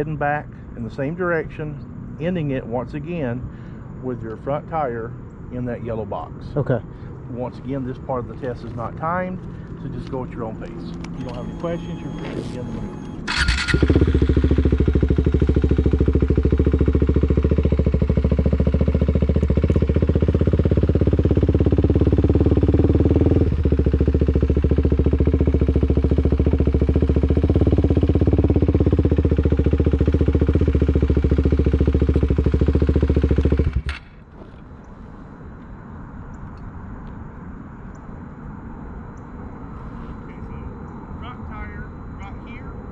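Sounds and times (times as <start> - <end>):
motorcycle engine running: 8.0 - 34.6.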